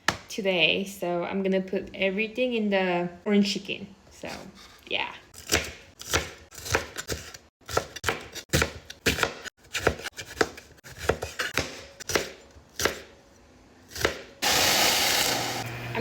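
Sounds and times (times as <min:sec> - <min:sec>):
knife chopping on cutting board: 0:05.4 - 0:13.1, 0:13.9 - 0:14.3.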